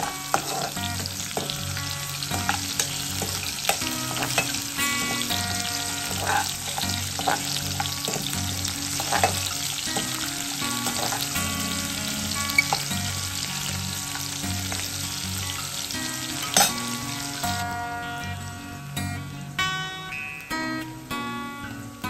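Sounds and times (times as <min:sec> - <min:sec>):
metal spatula scraping pan: 0:00.0 - 0:13.2
onions sizzling in hot oil: 0:00.0 - 0:22.0.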